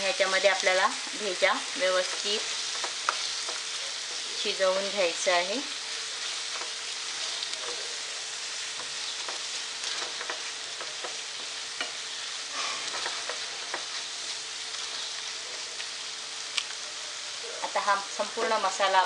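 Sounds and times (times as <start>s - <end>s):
frying hiss in a pan: 0.0s - 19.0s
spatula scraping and tapping pan: 1.9s - 4.3s, 6.2s - 8.0s, 8.7s - 14.1s.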